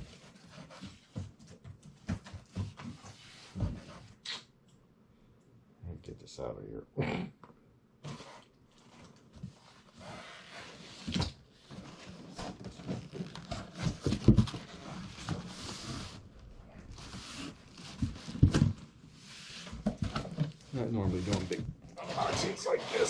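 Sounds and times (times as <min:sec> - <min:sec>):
packaging rustling and scraping: 0:08.1 - 0:23.0.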